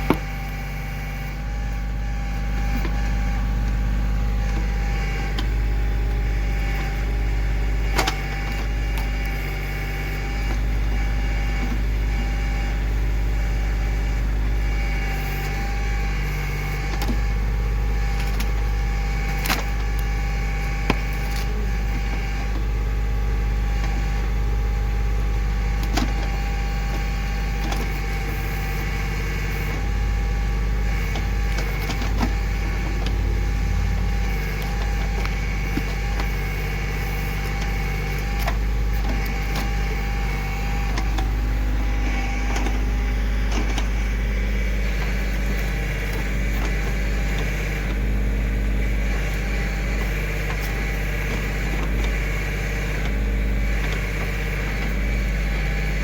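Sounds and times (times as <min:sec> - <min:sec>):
tractor diesel engine running: 0:00.0 - 0:56.0
sharp cracks and knocks: 0:18.2 - 0:20.1.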